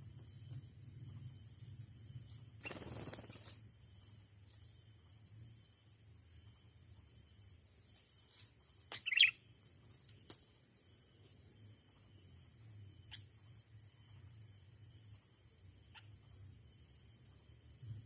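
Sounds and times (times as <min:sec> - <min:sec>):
insects droning: 0:00.0 - 0:18.0
bird chirp: 0:02.6 - 0:03.6, 0:08.2 - 0:09.6, 0:13.0 - 0:13.4, 0:15.9 - 0:16.3.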